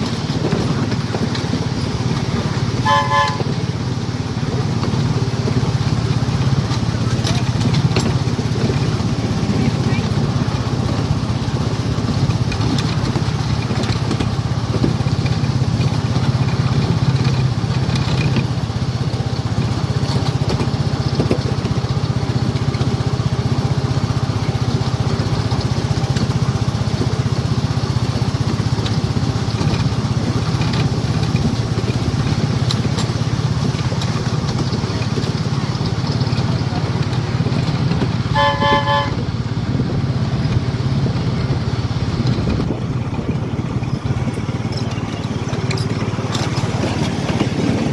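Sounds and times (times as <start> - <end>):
miniature train engine rumble: 0.0 - 47.9
wheel and track clicks: 0.0 - 47.9.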